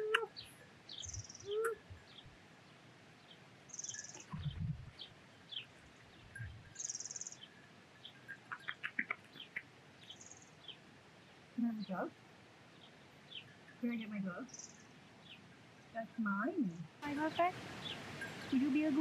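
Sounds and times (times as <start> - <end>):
small birds chirping: 0.0 - 19.0
soft low thump: 4.3 - 5.0.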